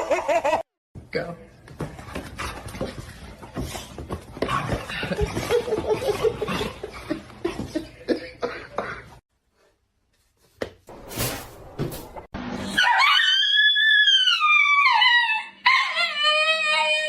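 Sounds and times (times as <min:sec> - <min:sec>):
dog howling: 0:12.8 - 0:17.0.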